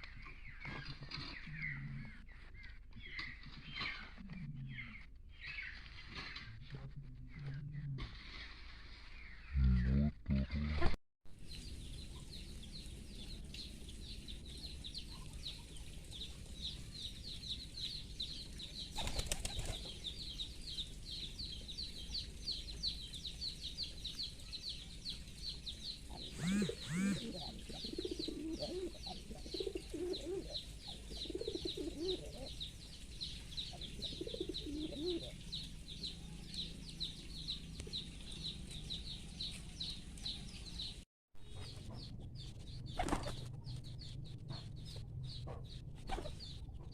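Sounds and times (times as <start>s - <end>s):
pigeon wings flapping: 18.9s - 19.9s
pigeons cooing: 26.1s - 32.6s, 33.7s - 35.6s, 45.4s - 46.5s
fast high-pitched chirping: 26.3s - 27.4s.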